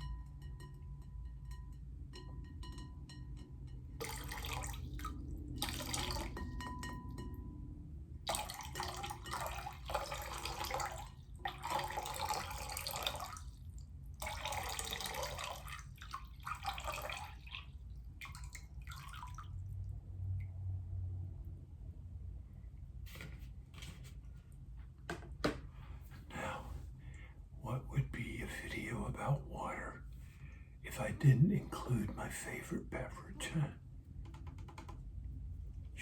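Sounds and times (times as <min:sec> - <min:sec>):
water dripping: 0:00.3 - 0:07.4, 0:08.2 - 0:20.6
water pouring and splashing: 0:04.0 - 0:07.0, 0:08.2 - 0:19.9.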